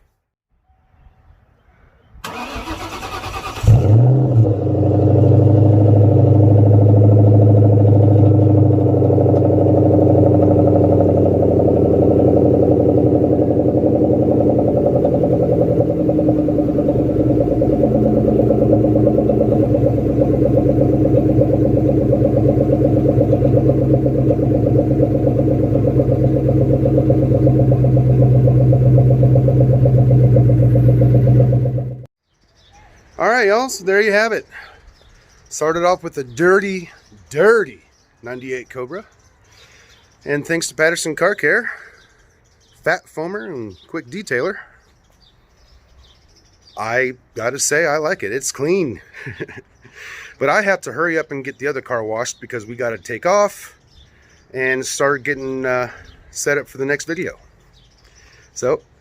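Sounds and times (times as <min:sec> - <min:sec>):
car starter cranking: 0:02.2 - 0:04.6
car engine idling: 0:02.3 - 0:32.1.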